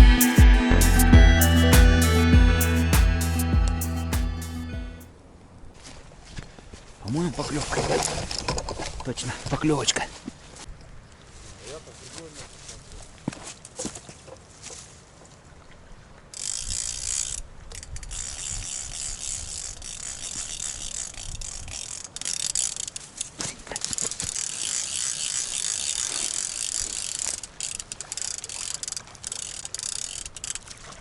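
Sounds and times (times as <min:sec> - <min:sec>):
fishing reel clicker ratcheting: 0:16.3 - 0:30.7.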